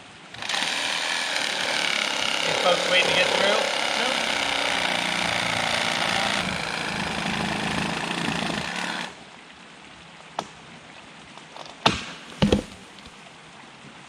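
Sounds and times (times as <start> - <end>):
reciprocating saw cutting wood: 0.3 - 9.2.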